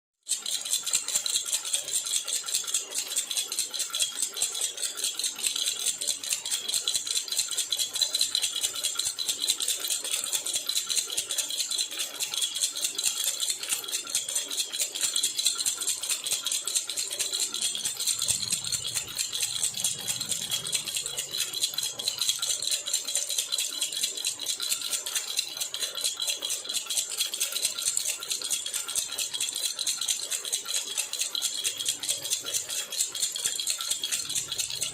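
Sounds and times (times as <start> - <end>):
metallic baby rattle shaken: 0.2 - 34.9.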